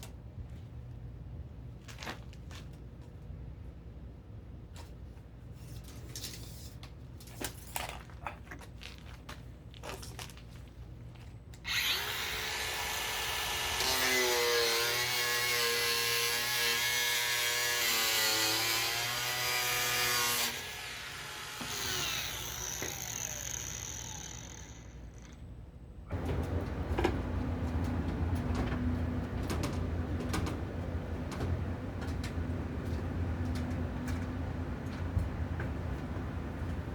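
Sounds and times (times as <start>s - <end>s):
power tool motor running: 11.7s - 25.3s.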